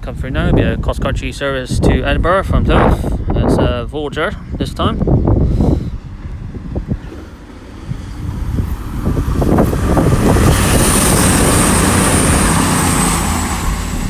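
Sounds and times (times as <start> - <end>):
diesel train passing: 3.0 - 14.0.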